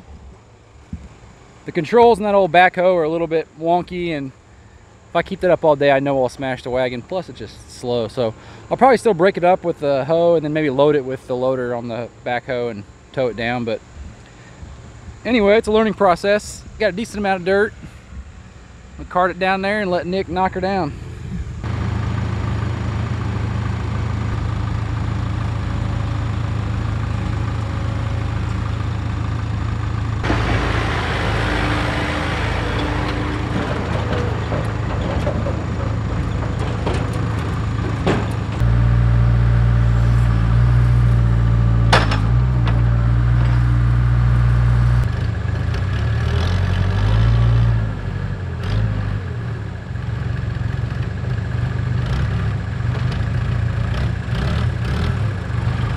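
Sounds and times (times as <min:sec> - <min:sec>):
diesel tractor engine running: 0:20.4 - 0:55.9.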